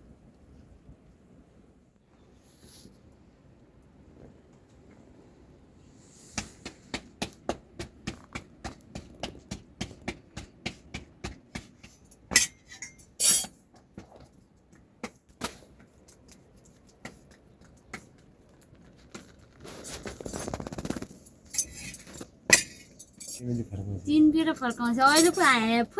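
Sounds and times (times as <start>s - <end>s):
kitchen utensils clinking: 12.3s - 13.5s, 21.6s - 23.4s, 24.4s - 25.7s
ringing metallic clinks: 12.4s - 13.5s, 22.6s - 23.4s, 24.4s - 25.7s.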